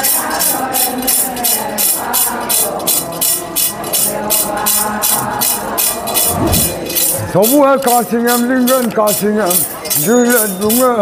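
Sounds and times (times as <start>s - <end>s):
rattle shaken rhythmically: 0.0s - 11.0s.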